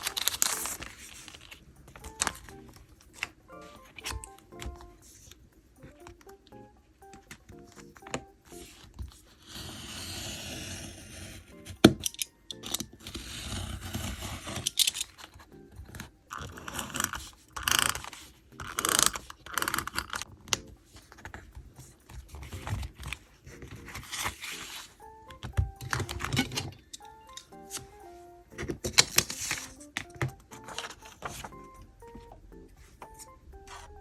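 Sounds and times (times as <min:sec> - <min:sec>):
paper and tape rustling: 0:00.0 - 0:06.2, 0:12.8 - 0:26.9, 0:28.6 - 0:34.0.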